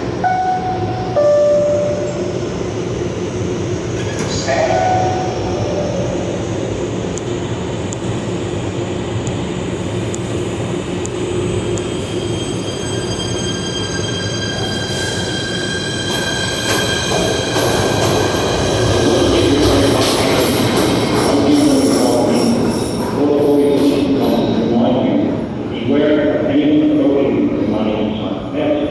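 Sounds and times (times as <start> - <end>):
subway train running: 0.0 - 28.9
train wheels squealing: 11.6 - 24.7.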